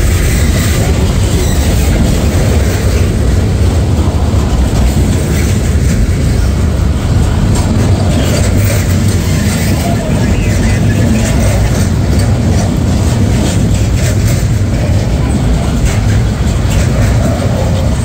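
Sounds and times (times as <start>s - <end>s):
train wheels rolling on track: 0.0s - 18.0s.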